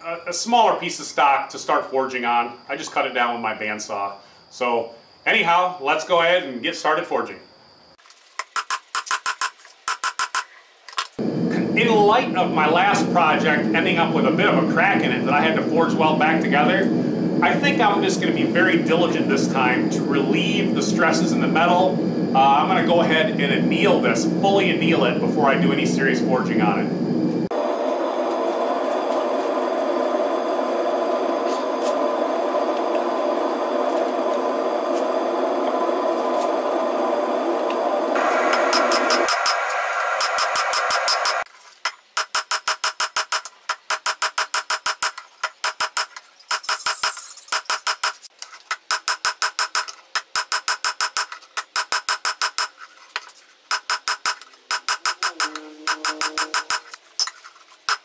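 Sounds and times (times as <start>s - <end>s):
gas forge burner rushing: 11.2s - 41.5s.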